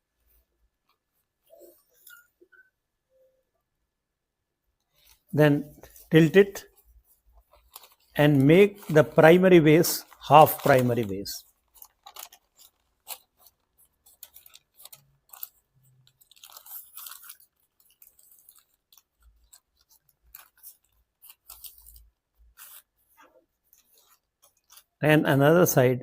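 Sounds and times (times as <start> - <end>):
paper crinkling and rustling: 4.9 - 25.0.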